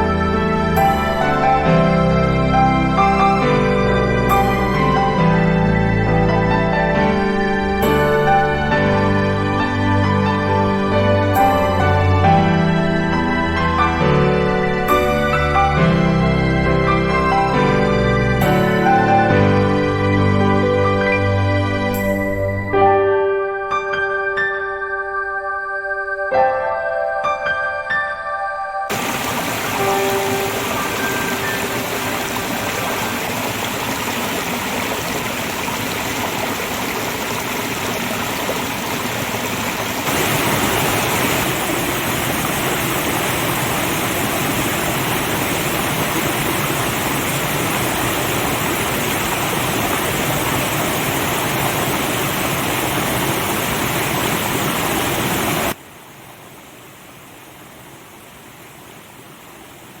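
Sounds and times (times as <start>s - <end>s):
waterfall rushing: 28.9s - 60.0s.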